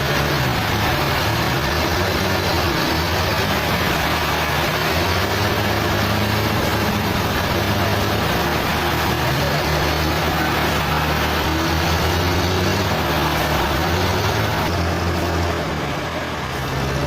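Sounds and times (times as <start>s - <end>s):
sawmill machinery drone: 0.0s - 17.0s.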